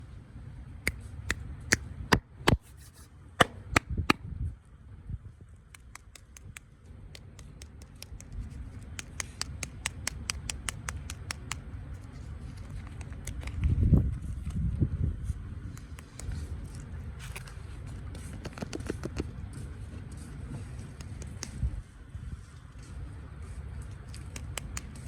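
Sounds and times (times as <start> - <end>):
sharp clicks and taps: 5.7 - 11.7, 24.1 - 25.0.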